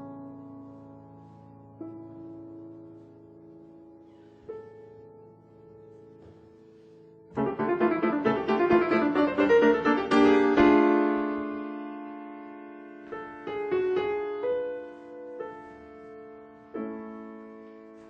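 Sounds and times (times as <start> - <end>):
piano playing: 0.0 - 18.0.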